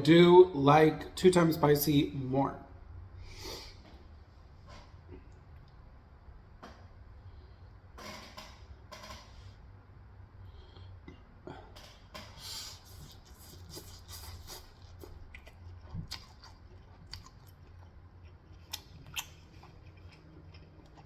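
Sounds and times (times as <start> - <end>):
person chewing crunchy food: 12.4 - 21.0.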